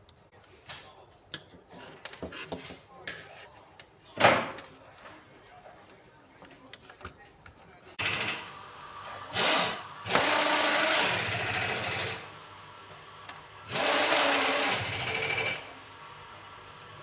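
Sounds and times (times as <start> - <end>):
cordless drill buzzing: 9.3 - 12.2, 13.7 - 15.7.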